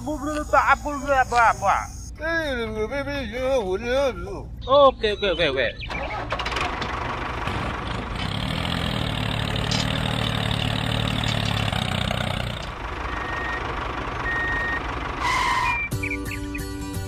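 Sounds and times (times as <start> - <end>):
short high beeps: 0.2 - 2.1
tractor engine running: 5.8 - 17.0.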